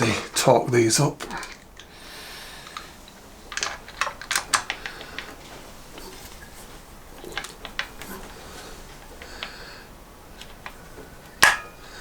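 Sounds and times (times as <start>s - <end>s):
metal parts clicking and tapping: 2.6s - 9.6s, 10.3s - 12.0s.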